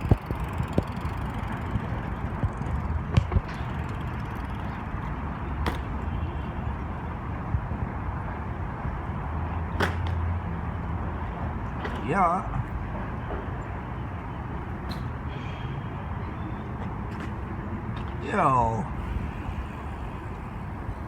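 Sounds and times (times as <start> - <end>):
bike tyres rumbling on pavement: 0.0 - 8.0.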